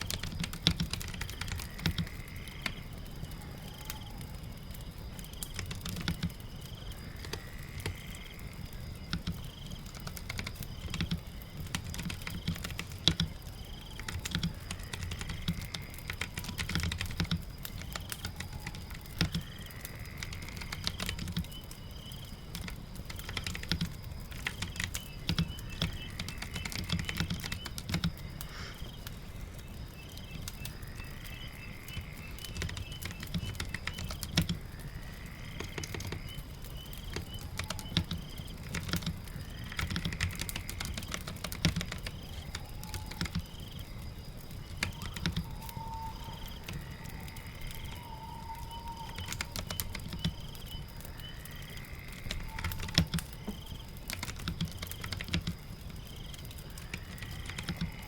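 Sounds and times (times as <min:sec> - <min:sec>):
typing on computer keyboard: 0:00.0 - 0:02.8, 0:05.4 - 0:06.4, 0:09.1 - 0:28.2, 0:32.4 - 0:34.6, 0:35.6 - 0:43.8, 0:44.7 - 0:51.3, 0:52.1 - 0:58.0
rain patter: 0:00.0 - 0:58.0.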